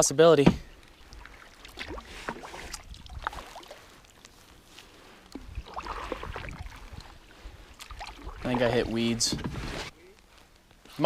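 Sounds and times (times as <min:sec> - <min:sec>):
paddle splashing in water: 0:00.5 - 0:04.2, 0:04.9 - 0:09.9
swish of water: 0:00.9 - 0:04.2, 0:05.3 - 0:09.0.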